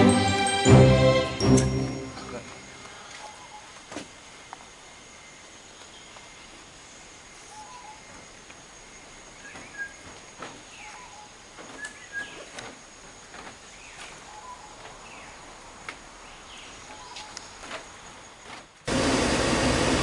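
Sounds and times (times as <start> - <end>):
thin high tone: 0.0 - 3.4
steady hiss: 1.2 - 18.9
birds chirping and whistling: 7.5 - 8.3, 9.0 - 13.0, 13.6 - 15.4, 16.3 - 17.9.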